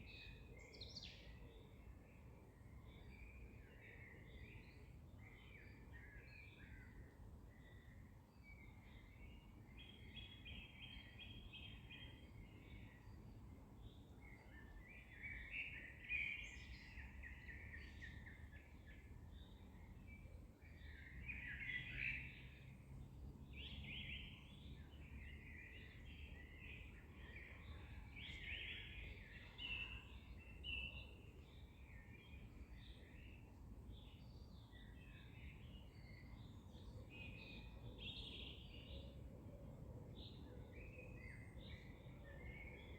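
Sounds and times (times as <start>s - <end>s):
songbirds singing: 0.0s - 42.9s.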